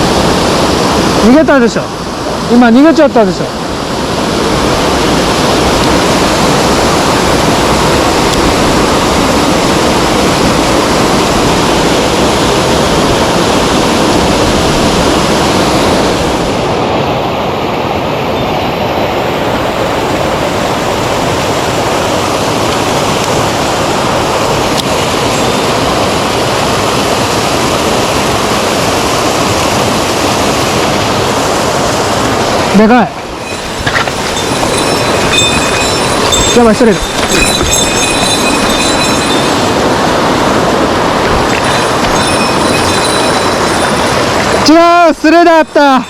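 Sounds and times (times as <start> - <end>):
mountain stream rushing: 0.0 - 46.0.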